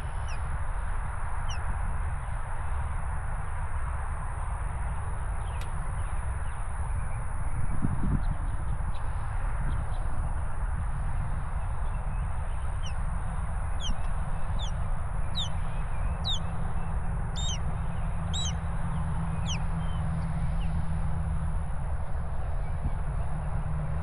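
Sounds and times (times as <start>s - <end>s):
steady low rumble: 7.4s - 23.0s
bird calling high sliding notes: 18.4s - 18.6s.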